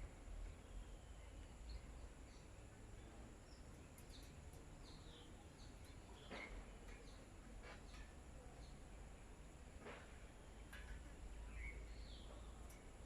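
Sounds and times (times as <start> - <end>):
bird chirps: 11.5 - 12.5.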